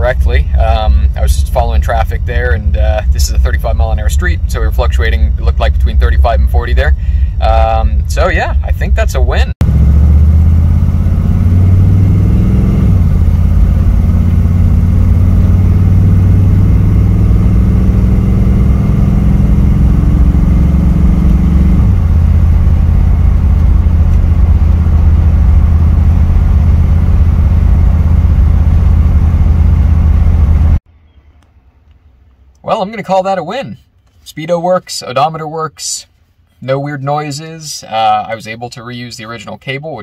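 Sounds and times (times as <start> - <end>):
car engine heard from inside: 0.0 - 30.8.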